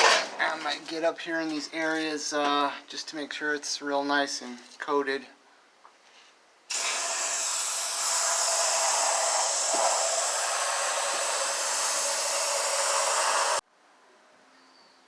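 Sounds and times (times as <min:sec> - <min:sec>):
aerosol spray can hissing: 0:06.7 - 0:13.6.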